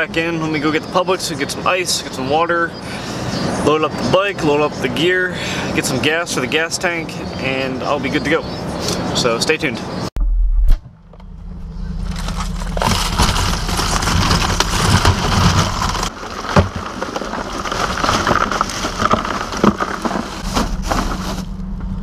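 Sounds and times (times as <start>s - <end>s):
vehicle low hum: 0.0s - 22.0s
clicks and crackles: 12.0s - 21.4s.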